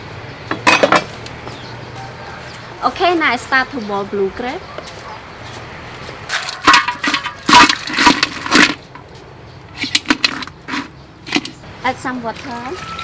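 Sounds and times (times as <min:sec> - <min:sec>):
crab shells clattering in a pot: 0:06.3 - 0:09.1, 0:09.7 - 0:11.6.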